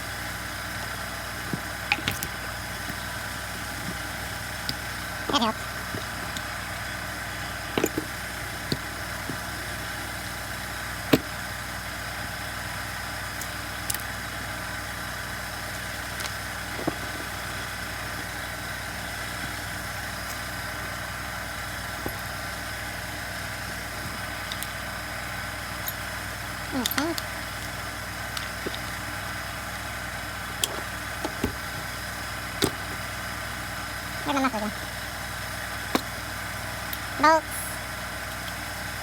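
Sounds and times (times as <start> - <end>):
steady mechanical hum: 0.0 - 39.0
clicks and knocks of small tools: 24.1 - 24.8.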